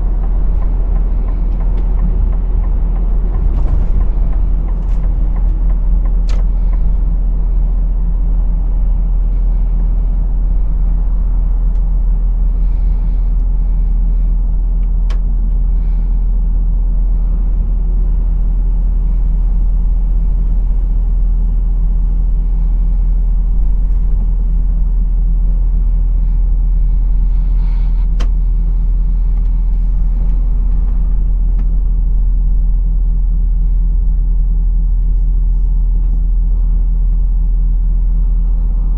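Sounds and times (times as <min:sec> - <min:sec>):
truck diesel engine rumble: 0:00.0 - 0:38.9.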